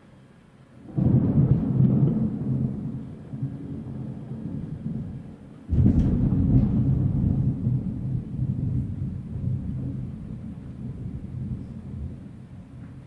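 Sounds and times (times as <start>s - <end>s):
thunder clap and rumble: 0.9s - 13.0s.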